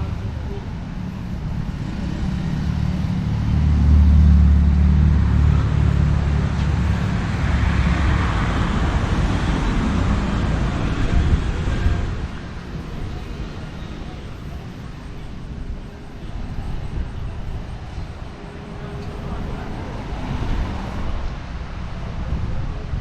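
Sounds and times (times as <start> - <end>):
vehicle passing by: 1.4 - 12.5.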